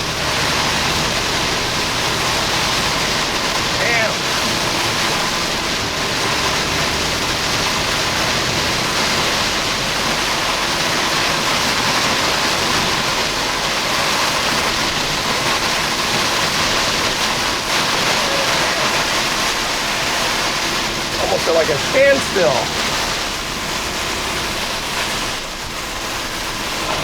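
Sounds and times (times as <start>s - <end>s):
heavy rain on a car: 0.0s - 27.0s.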